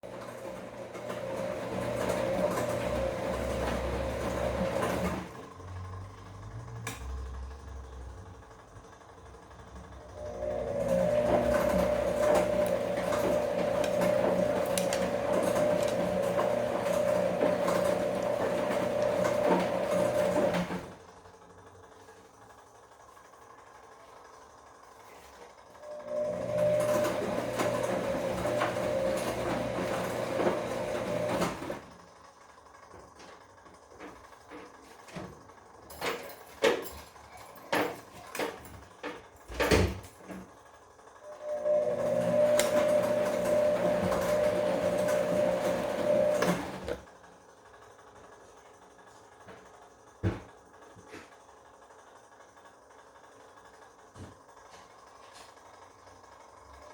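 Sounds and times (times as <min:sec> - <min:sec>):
washing machine running: 0:00.0 - 0:56.9
washing machine knocks and clunks: 0:37.6 - 0:40.5, 0:50.2 - 0:50.6.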